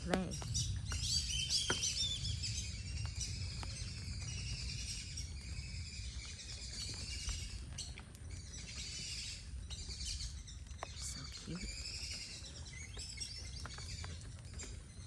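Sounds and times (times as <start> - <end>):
small birds chirping and singing: 0.0 - 15.0.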